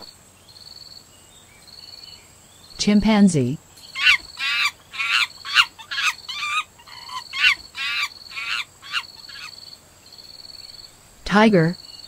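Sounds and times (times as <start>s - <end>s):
chimpanzee calling: 3.8s - 9.7s.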